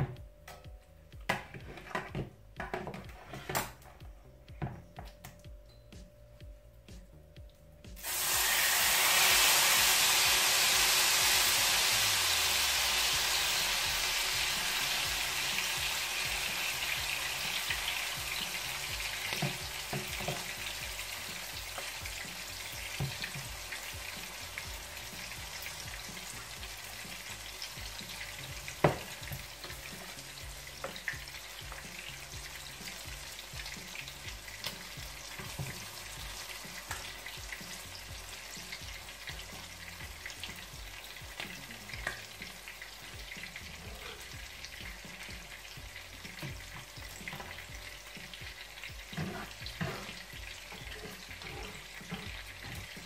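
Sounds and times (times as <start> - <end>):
turner scraping bowl and pan: 1.3 - 2.2, 2.8 - 3.8, 46.2 - 53.0
food sizzling in hot oil: 7.9 - 53.0.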